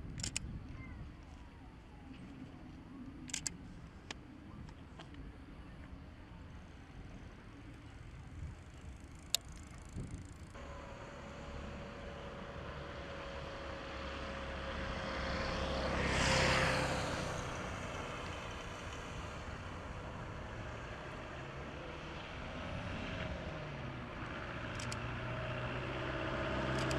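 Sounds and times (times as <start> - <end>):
aircraft engine drone: 0.0 - 26.9
sharp click: 0.1 - 0.5, 3.3 - 4.2, 24.7 - 25.0.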